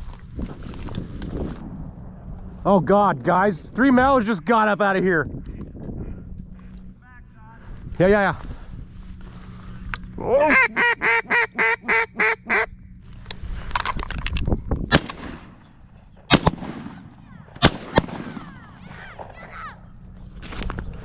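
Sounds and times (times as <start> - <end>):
duck quacks: 10.5 - 12.7
shotgun shots: 14.9 - 15.6, 16.2 - 19.4.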